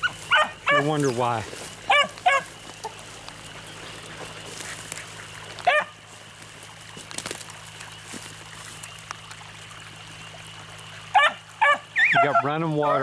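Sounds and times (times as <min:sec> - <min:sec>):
dog baying: 0:00.0 - 0:01.1, 0:01.9 - 0:03.0, 0:05.6 - 0:06.0, 0:11.2 - 0:13.0
creek water trickling: 0:00.0 - 0:13.0.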